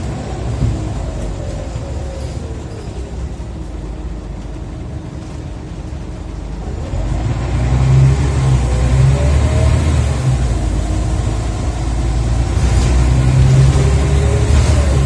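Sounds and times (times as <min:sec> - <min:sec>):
bus diesel engine: 0:00.0 - 0:15.0
gearbox whine: 0:08.0 - 0:15.0.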